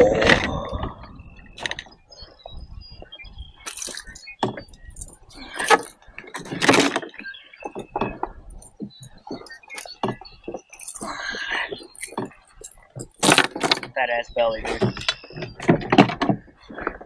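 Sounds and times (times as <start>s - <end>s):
fishing gear clinking and rattling: 3.6s - 14.0s, 14.7s - 17.0s.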